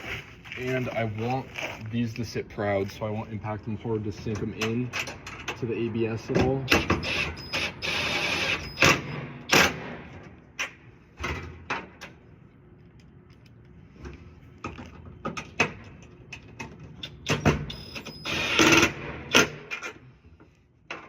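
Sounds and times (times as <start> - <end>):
impact driver running: 18.0 - 19.5.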